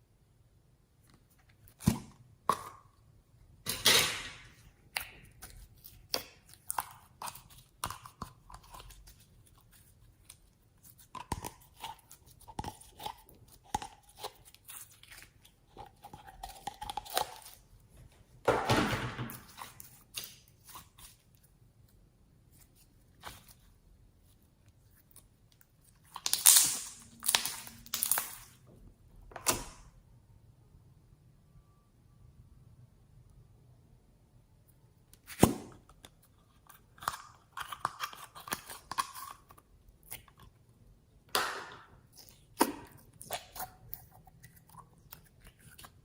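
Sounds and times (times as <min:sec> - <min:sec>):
slime crunching: 0:04.5 - 0:17.7, 0:24.8 - 0:28.6, 0:41.3 - 0:46.0
slime clicking and squishing: 0:25.0 - 0:28.5.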